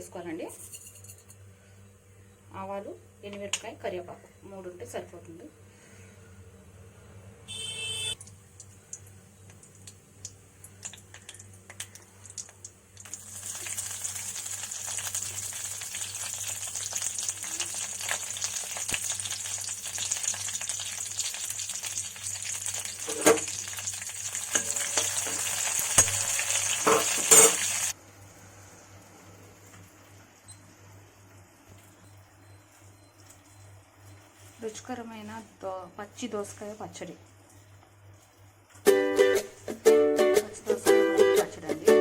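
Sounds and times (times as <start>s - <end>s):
mustard seeds popping in oil: 8.2s - 27.5s
spices sizzling in hot oil: 8.2s - 28.0s.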